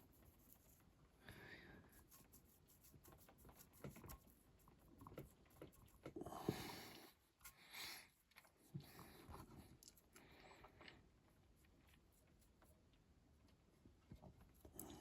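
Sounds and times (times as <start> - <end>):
scratchy rustle: 0.0 - 1.1, 1.8 - 6.0.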